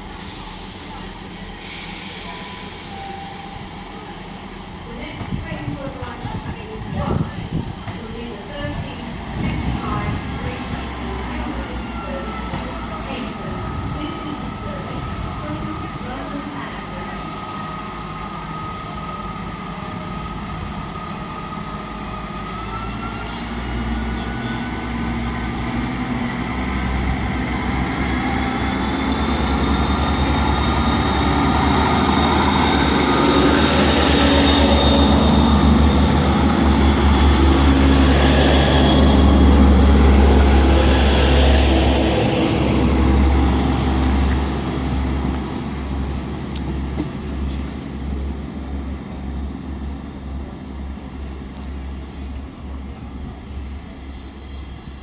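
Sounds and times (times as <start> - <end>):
diesel train engine rumble: 0.0 - 55.0
rising whine: 22.4 - 46.6.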